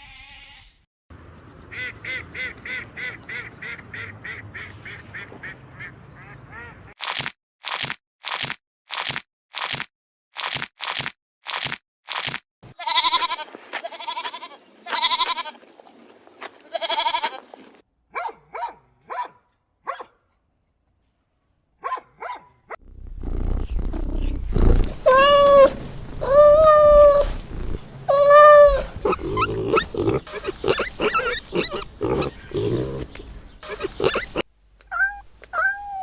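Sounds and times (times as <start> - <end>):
outdoor background noise: 0.0 - 7.8, 10.9 - 36.0
farm animal quavering cries: 12.8 - 15.6, 16.6 - 17.7, 25.0 - 36.0
farm animal arching calls: 12.8 - 17.8, 24.0 - 36.0
animal grunts: 22.8 - 34.5.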